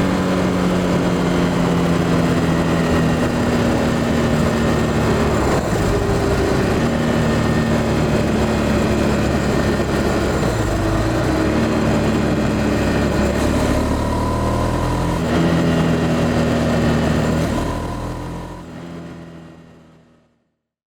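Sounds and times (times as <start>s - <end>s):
motorcycle engine running: 0.0s - 20.2s.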